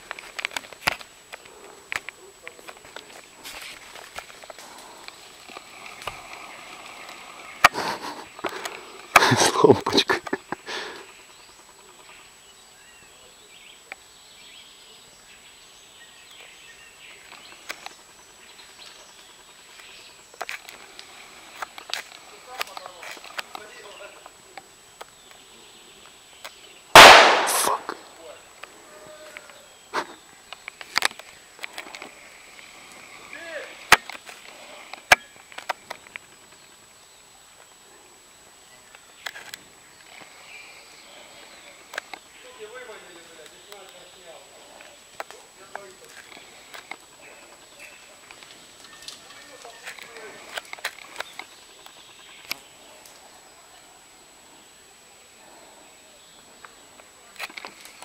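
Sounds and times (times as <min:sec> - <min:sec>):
faint bird chirps: 0:10.4 - 0:23.0, 0:34.6 - 0:45.5
airsoft gun shots: 0:26.9 - 0:28.0.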